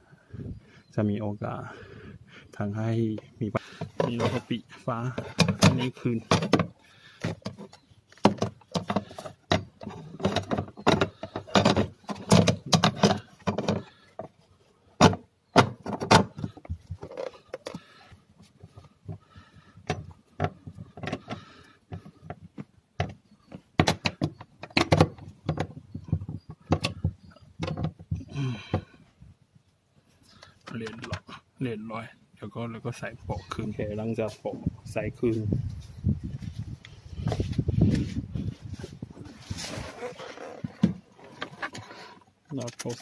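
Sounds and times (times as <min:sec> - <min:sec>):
car parts clicking and rattling: 0:03.2 - 0:29.0.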